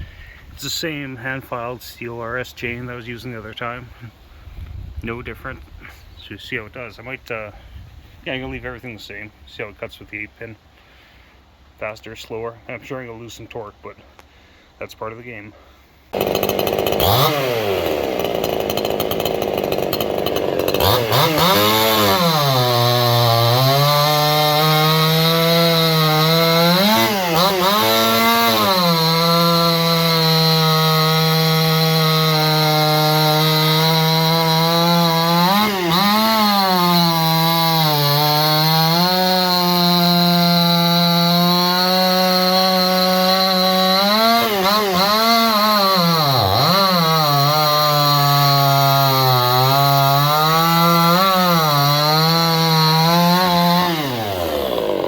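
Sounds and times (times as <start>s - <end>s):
chainsaw cutting wood: 16.1s - 55.0s.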